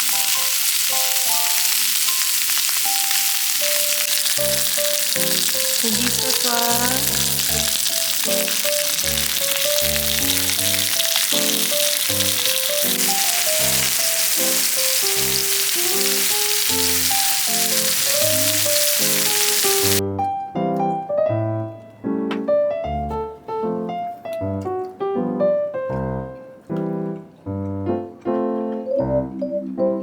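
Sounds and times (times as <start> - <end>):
meat sizzling in a pan: 0.0 - 20.0
background piano music: 0.0 - 30.0.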